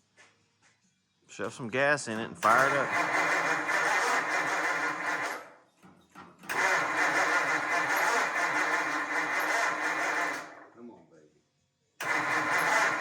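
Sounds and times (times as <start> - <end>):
engine starter cranking: 2.2 - 5.5, 6.2 - 10.7, 12.0 - 13.0.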